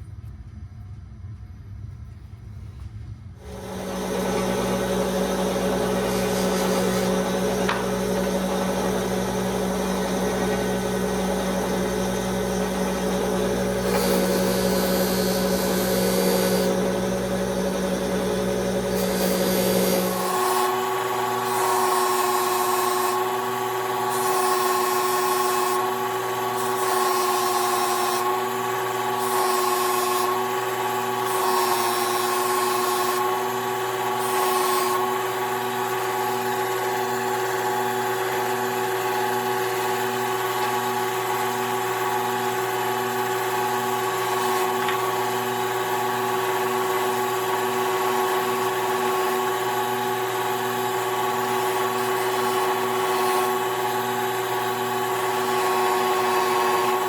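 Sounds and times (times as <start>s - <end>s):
harsh hiss of workpiece: 3.4s - 54.1s
power tool motor humming: 3.4s - 57.0s.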